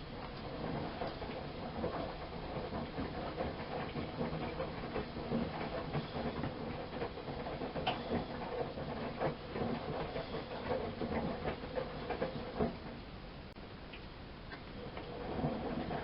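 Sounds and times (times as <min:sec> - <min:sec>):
washing machine drum churning: 0:00.0 - 0:13.6, 0:14.5 - 0:16.0.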